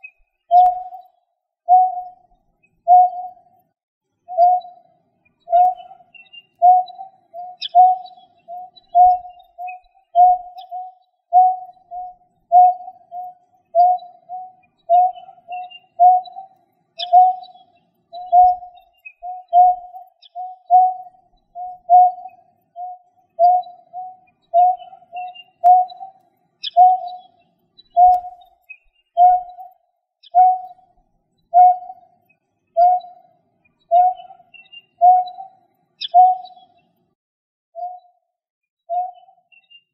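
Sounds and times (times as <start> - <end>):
faint high bird chirps: 0.0 - 37.1, 37.8 - 39.9
bird hooting: 2.9 - 3.4, 5.5 - 17.5, 18.2 - 27.3, 30.4 - 30.7, 31.6 - 32.0, 33.9 - 34.4, 35.0 - 36.6.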